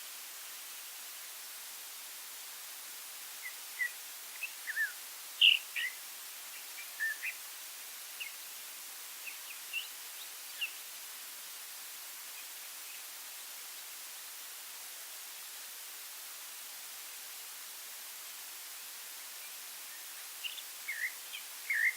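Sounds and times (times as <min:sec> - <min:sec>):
steady background hiss: 0:00.0 - 0:21.9
songbird chirping and whistling: 0:03.4 - 0:06.0, 0:06.8 - 0:07.4, 0:19.9 - 0:21.9.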